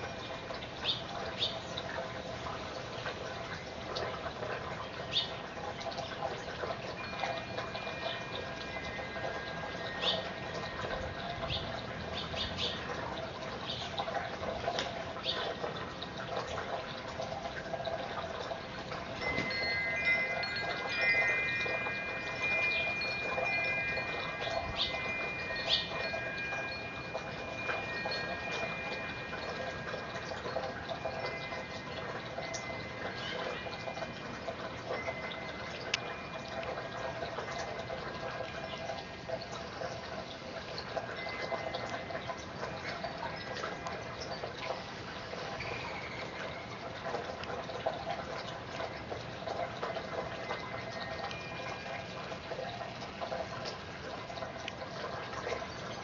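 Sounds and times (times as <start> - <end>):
chimes ringing: 6.8 - 11.6, 17.6 - 47.3, 49.8 - 53.8.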